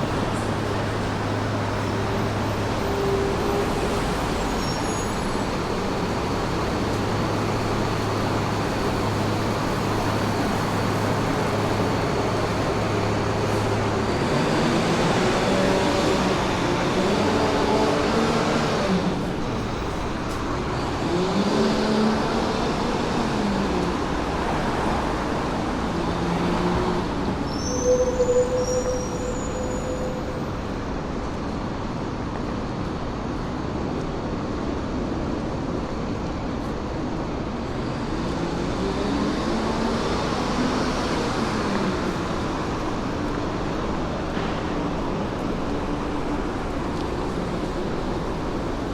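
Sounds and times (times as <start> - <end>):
road traffic passing: 0.0 - 48.9
high-pitched squeal: 27.5 - 30.8.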